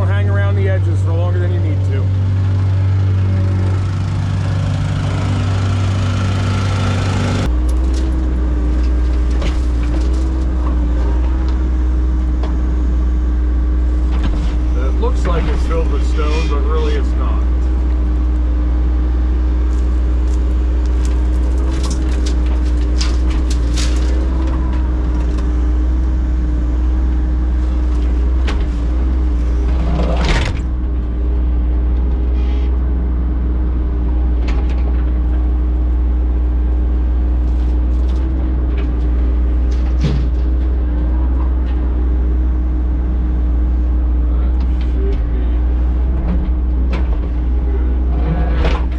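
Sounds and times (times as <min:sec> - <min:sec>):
heavy equipment engine running: 0:00.0 - 0:48.9
machine knocks and scrapes: 0:46.0 - 0:48.9.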